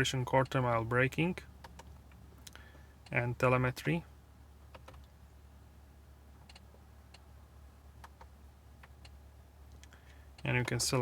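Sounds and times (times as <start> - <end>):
faint low cabin hum: 0.0 - 11.0
infotainment control clicks: 6.4 - 7.2, 8.0 - 9.2.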